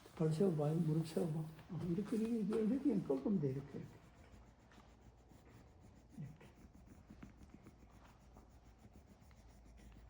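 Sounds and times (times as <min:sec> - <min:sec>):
scratchy rubbing: 0:00.0 - 0:10.0.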